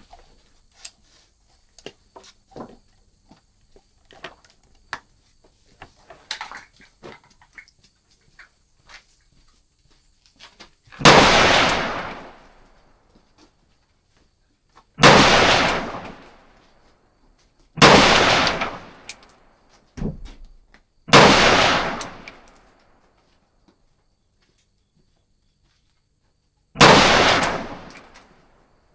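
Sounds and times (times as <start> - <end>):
rifle gunshots echoing: 11.0 - 12.6, 15.0 - 16.5, 17.8 - 19.3, 21.1 - 22.7, 26.8 - 28.4.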